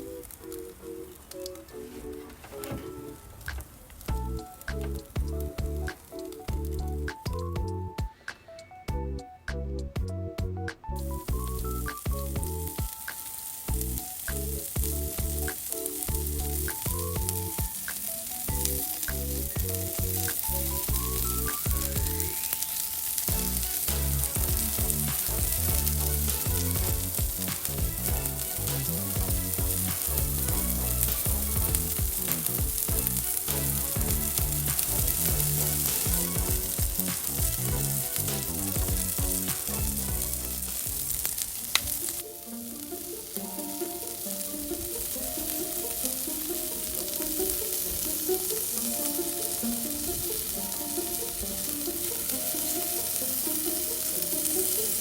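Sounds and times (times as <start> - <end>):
background music with bass beat: 4.1 - 22.6, 23.3 - 41.3
skewers sizzling on a grill: 11.2 - 55.0.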